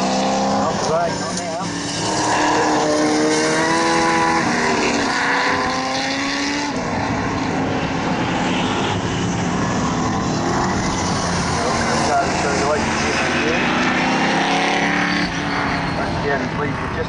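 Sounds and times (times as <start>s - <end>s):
race car engines: 0.0s - 17.0s.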